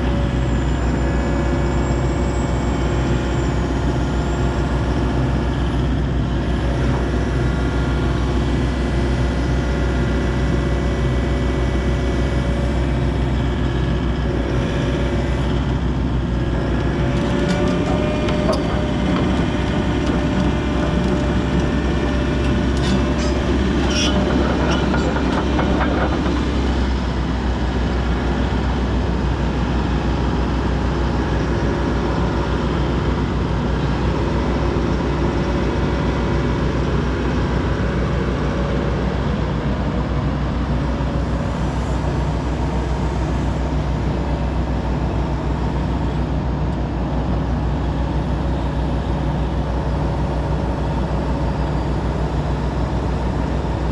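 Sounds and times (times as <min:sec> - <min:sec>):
excavator diesel engine running: 0:00.0 - 0:53.9
short knocks and squeaks: 0:17.3 - 0:26.9.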